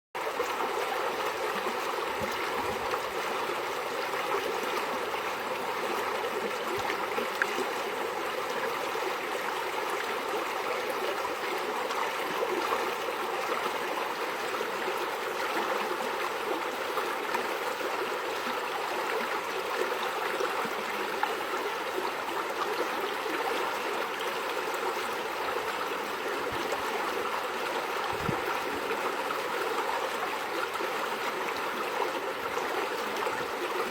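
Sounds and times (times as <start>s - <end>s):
stream flowing and trickling: 0.2s - 33.9s.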